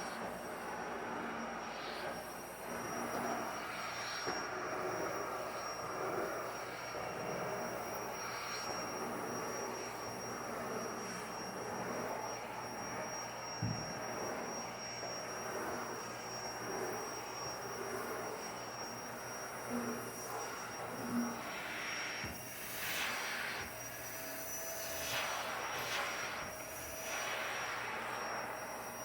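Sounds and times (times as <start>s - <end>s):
vacuum cleaner running: 0.0s - 29.0s
thump: 13.6s - 13.9s.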